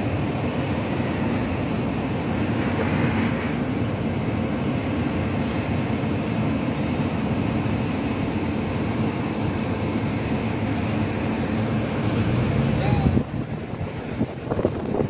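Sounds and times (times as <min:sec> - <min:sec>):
fire engine engine rumbling: 0:00.0 - 0:15.0.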